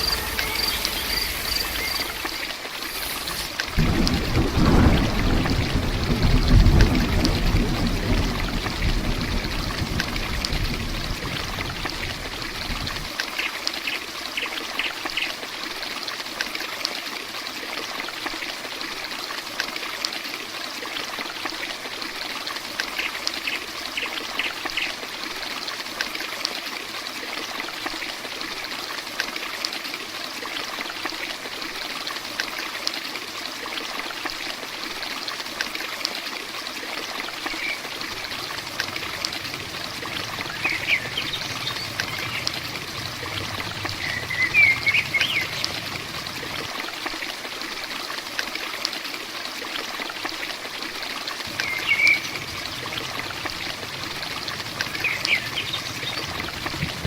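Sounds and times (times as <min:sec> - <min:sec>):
heavy rain falling: 0:00.0 - 0:13.3, 0:37.2 - 0:47.2, 0:51.4 - 0:57.0
low rumble: 0:38.0 - 0:46.7.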